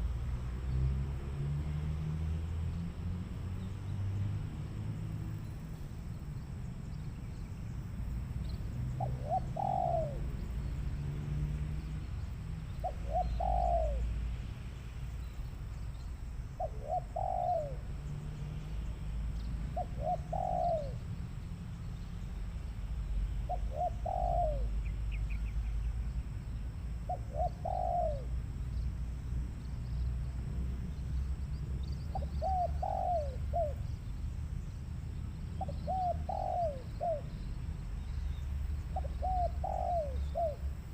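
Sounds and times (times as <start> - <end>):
dove cooing: 8.9 - 10.4, 12.7 - 14.2, 16.6 - 17.9, 19.7 - 21.0, 23.4 - 25.2, 27.0 - 28.4, 32.1 - 34.0, 35.6 - 37.4, 38.3 - 40.9.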